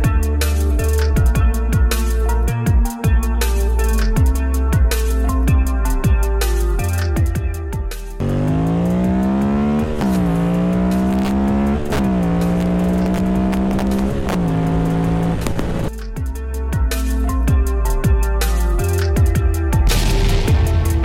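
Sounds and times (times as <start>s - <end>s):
engine accelerating through gears: 8.2s - 15.9s.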